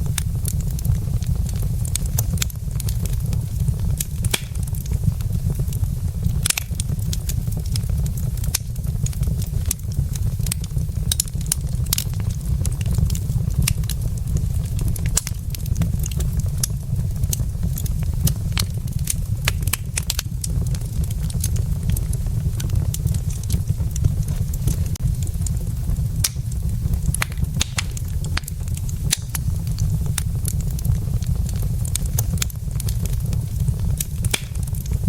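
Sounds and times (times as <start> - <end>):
wood fire crackling and popping: 0.0 - 35.0.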